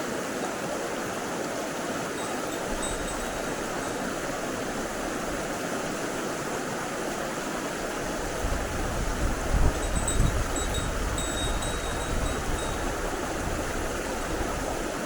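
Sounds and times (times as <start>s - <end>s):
wind buffeting microphone: 2.2s - 6.4s, 7.6s - 15.0s.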